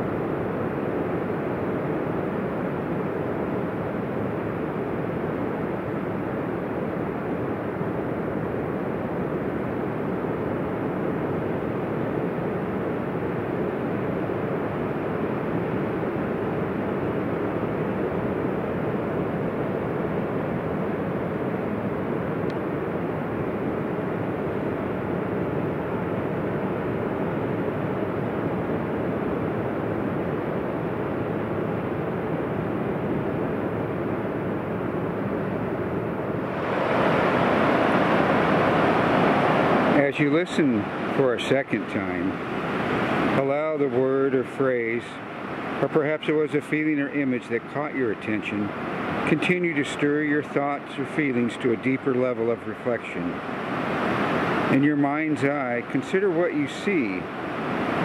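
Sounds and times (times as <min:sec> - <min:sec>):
ocean surf breaking: 0:36.4 - 0:58.0.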